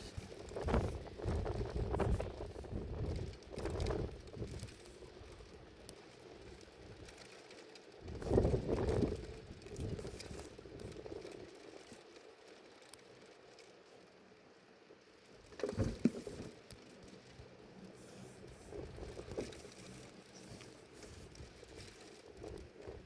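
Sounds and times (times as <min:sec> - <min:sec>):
wind buffeting microphone: 0:00.0 - 0:05.8, 0:08.0 - 0:11.5, 0:18.4 - 0:23.0.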